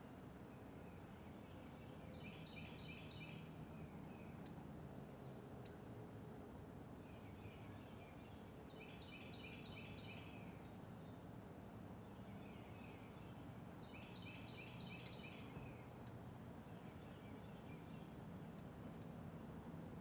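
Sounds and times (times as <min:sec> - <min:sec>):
soft bird twittering: 0:07.1 - 0:10.5, 0:12.2 - 0:18.6.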